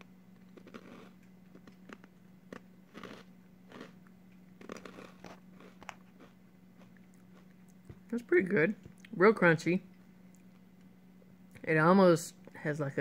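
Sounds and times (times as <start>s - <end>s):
crunchy snack being chewed: 0.0s - 8.2s
steady low hum: 0.0s - 13.0s.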